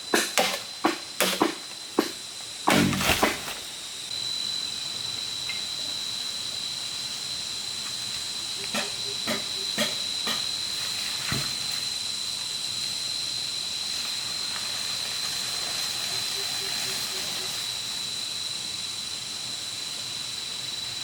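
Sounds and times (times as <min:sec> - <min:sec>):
high-pitched hiss with whine: 0:00.0 - 0:21.0
tool knocking on bamboo: 0:00.2 - 0:03.5.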